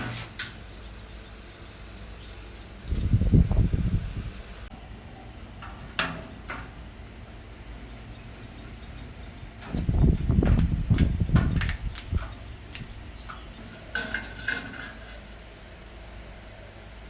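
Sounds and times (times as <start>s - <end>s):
metal pieces clinking and clattering: 1.4s - 4.9s.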